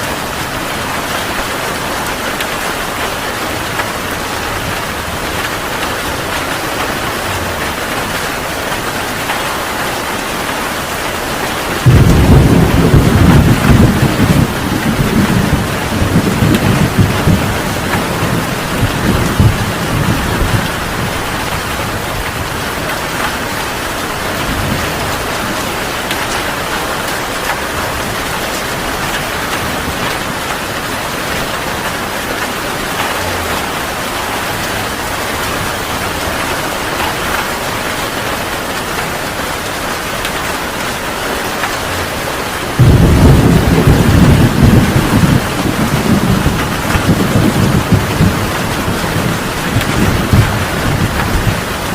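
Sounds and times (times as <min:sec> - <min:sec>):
heavy rain pouring: 0:00.0 - 0:51.9
thunder rumbling: 0:00.1 - 0:51.9
loud peal of thunder: 0:11.8 - 0:21.2, 0:42.8 - 0:51.9.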